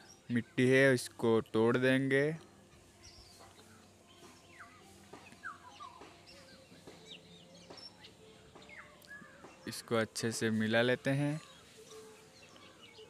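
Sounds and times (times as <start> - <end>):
faint bird chirps: 3.0 - 9.9, 11.3 - 13.0.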